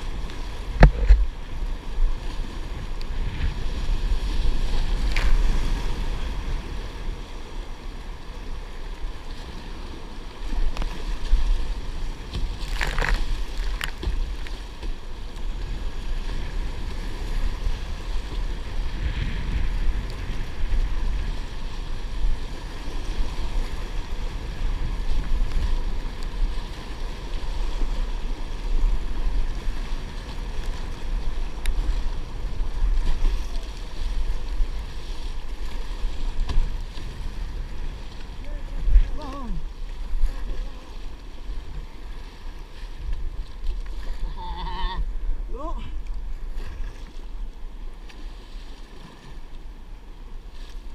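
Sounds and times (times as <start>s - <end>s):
water lapping around kayak: 0.0s - 50.9s
wind buffeting microphone: 15.5s - 40.5s.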